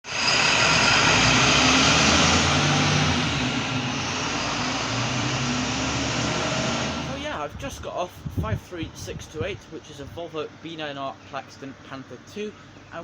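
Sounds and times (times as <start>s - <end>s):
heavy diesel engine running: 0.0s - 7.6s.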